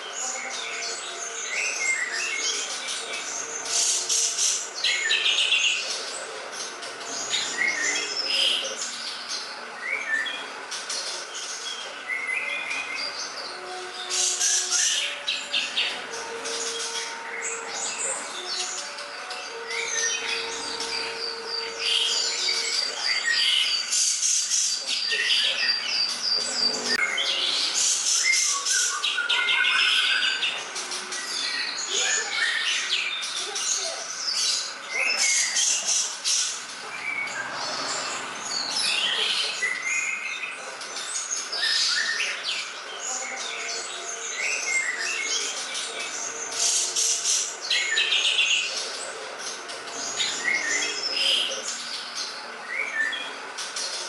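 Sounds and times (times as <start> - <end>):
bird singing chirps and trills: 0.0 - 54.0
bird song chirps and whistles: 11.4 - 30.6.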